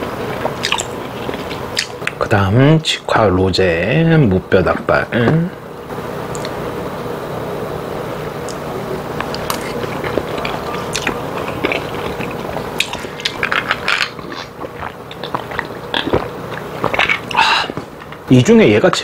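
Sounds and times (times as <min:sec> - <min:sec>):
close chewing with wet smacks: 0:00.0 - 0:02.2, 0:09.2 - 0:18.2.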